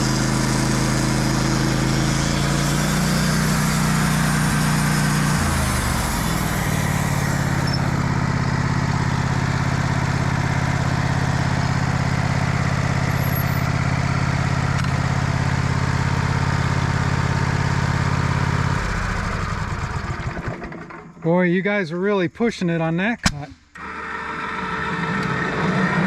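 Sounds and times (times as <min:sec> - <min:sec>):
band saw cutting log: 0:00.0 - 0:08.2, 0:23.8 - 0:26.0
sawmill engine under load: 0:00.0 - 0:21.2, 0:23.8 - 0:26.0.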